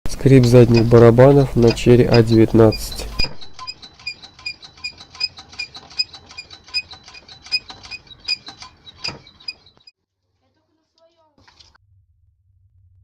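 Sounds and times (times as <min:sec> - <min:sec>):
drum brakes squeaking: 0:00.1 - 0:09.9.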